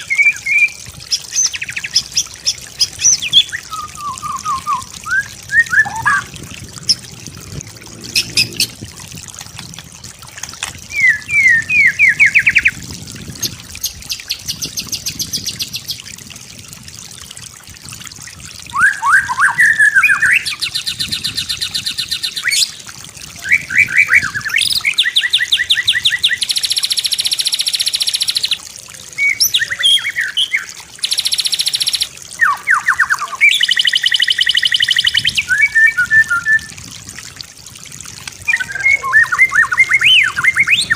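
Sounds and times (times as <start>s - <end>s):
bird singing whistles and trills: 0.0s - 6.3s, 10.9s - 12.8s, 18.7s - 22.7s, 23.4s - 28.6s, 29.2s - 36.7s, 38.5s - 40.9s.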